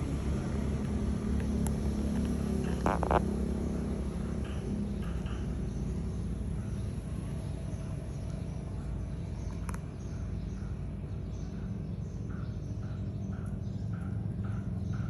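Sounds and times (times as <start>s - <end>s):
marine diesel engine rumbling: 0.0s - 9.5s.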